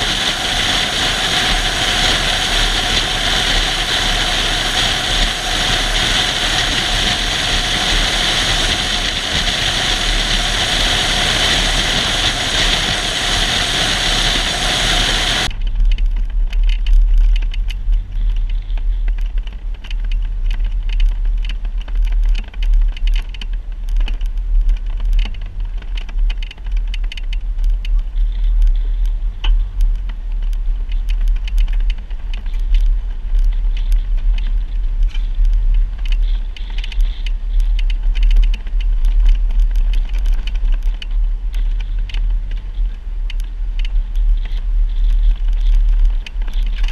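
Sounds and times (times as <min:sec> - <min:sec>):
loud dense steady noise: 0:00.0 - 0:15.8
low engine rumble: 0:00.0 - 0:46.9.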